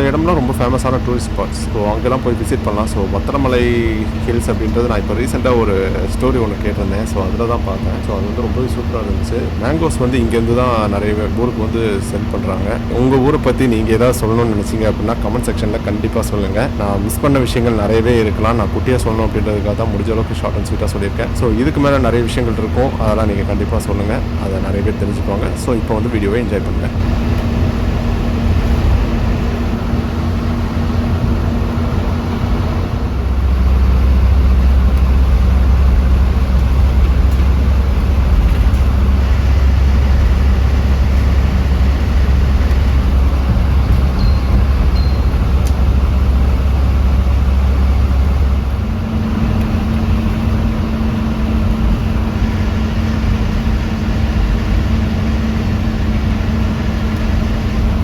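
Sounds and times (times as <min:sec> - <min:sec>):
bus engine humming: 0:00.0 - 0:58.0.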